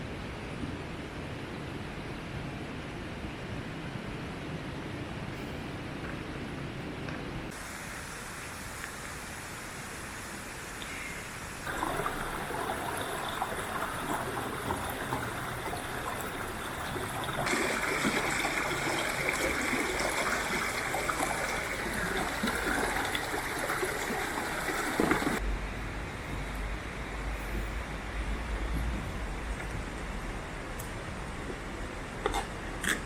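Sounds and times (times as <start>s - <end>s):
stream water flowing: 7.5s - 25.4s.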